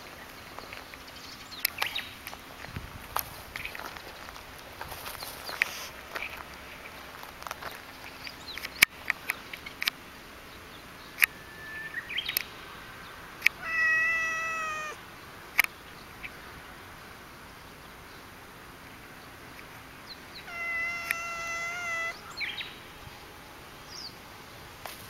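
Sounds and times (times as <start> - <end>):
cat meowing: 13.6 - 15.0, 20.4 - 22.3
sharp clicks: 20.9 - 21.4.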